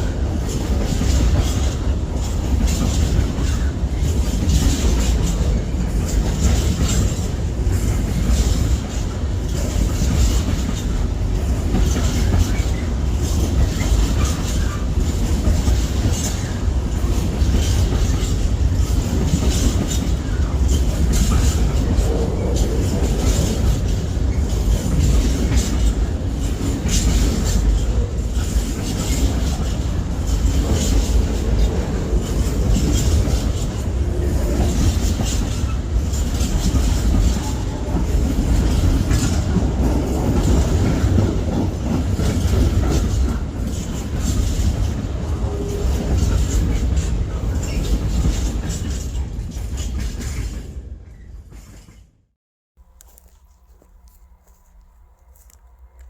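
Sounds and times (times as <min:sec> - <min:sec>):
wheels clicking over rail joints: 0:00.0 - 0:52.0
train rumbling past: 0:00.0 - 0:56.0.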